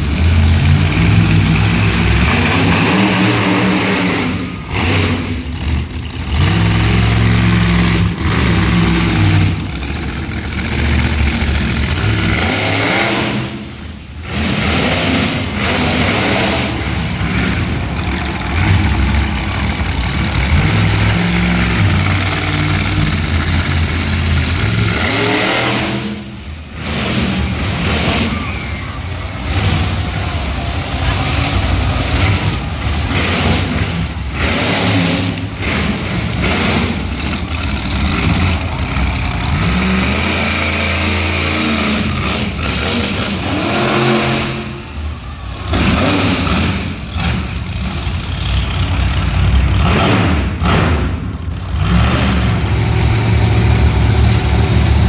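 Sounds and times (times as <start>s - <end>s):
monster truck engine revving: 0.0s - 55.0s.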